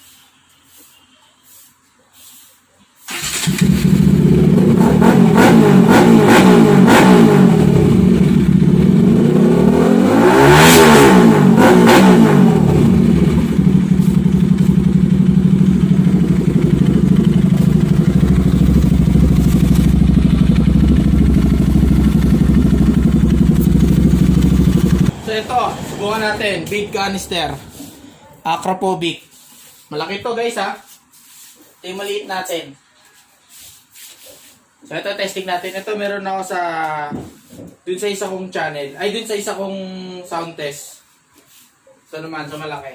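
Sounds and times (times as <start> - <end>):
motorcycle engine revving and idling: 3.2 - 28.1.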